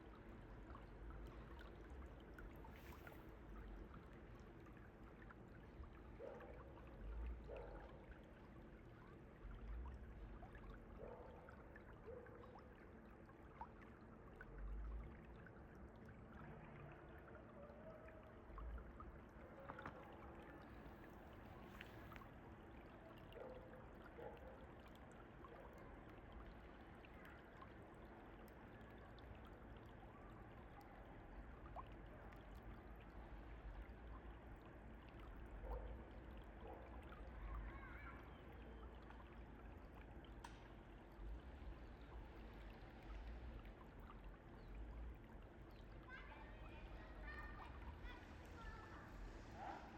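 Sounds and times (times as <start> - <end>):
mountain stream flowing: 12.1 - 49.9.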